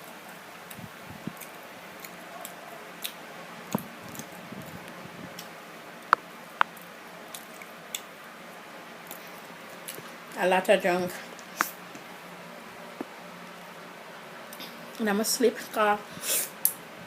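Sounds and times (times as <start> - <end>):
wet squishing and chewing: 0.7 - 5.5, 6.6 - 8.1.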